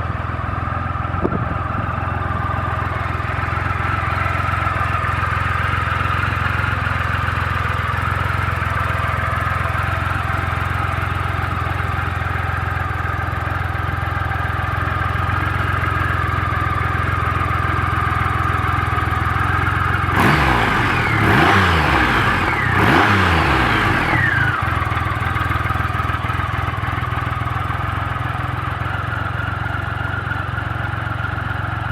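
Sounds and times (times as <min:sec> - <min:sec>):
motorcycle engine idling: 0:00.0 - 0:31.9
engine revving: 0:19.8 - 0:25.3.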